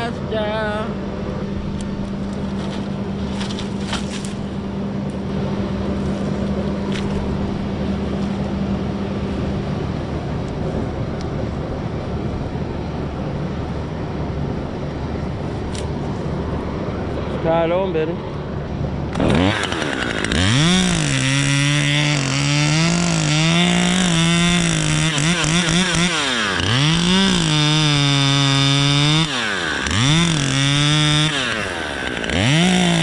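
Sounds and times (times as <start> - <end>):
engine humming: 0.0 - 33.0.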